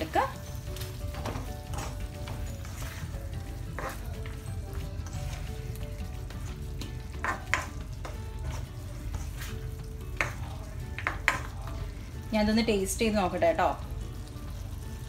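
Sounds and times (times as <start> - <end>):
food sizzling in a wok: 0.0 - 15.0
spatula scraping pan: 3.7 - 4.1, 7.2 - 10.4.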